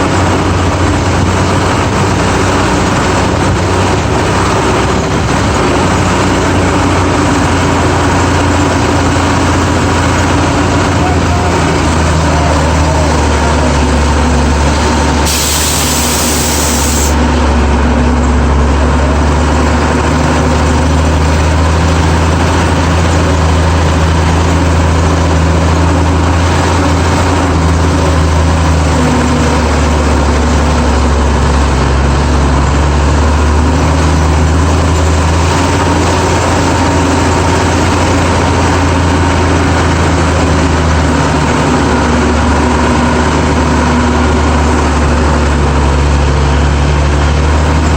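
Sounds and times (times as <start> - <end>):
truck engine droning: 0.0 - 47.9
brief hiss: 15.2 - 17.2.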